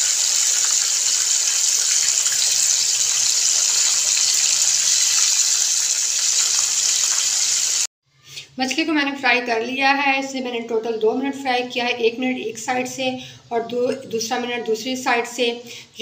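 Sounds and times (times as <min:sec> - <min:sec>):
fish sizzling in hot oil: 0:00.0 - 0:07.9.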